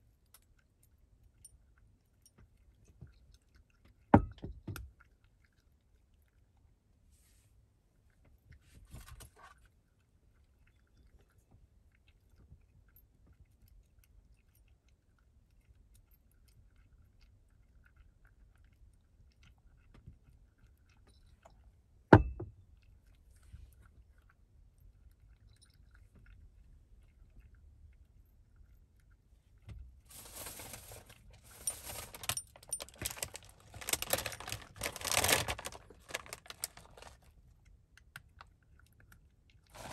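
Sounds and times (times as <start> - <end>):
glass bottle knocking on table: 4.2 - 4.8, 22.1 - 22.5
cat crunching dry food: 30.0 - 39.9.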